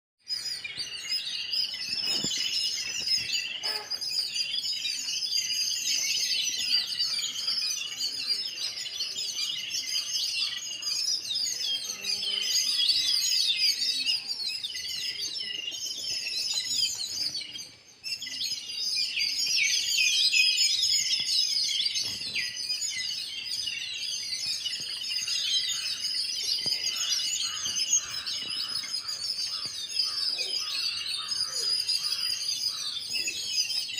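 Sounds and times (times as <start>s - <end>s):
sparrows chirping: 0.2s - 33.9s.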